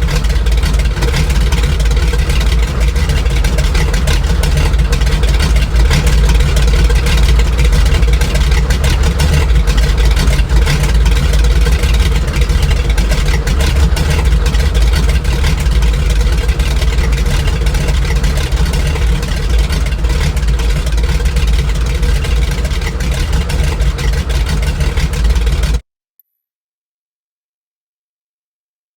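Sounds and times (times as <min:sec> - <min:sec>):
aircraft radial engines droning: 0:00.0 - 0:25.8.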